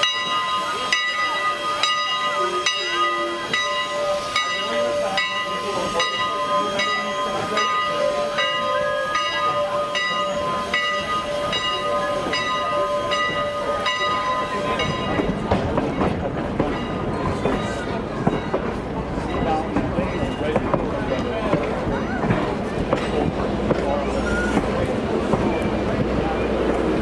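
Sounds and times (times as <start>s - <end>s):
steam hissing: 0.0s - 15.5s
moving train rumble: 0.0s - 27.0s
steam locomotive bell ringing: 0.0s - 27.0s.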